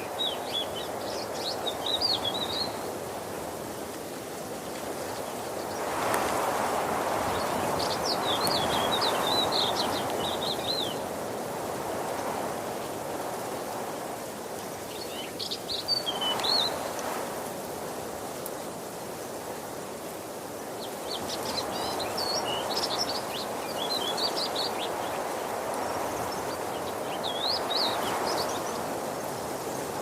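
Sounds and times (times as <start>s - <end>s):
waterfall rushing: 0.0s - 11.8s, 13.5s - 17.5s.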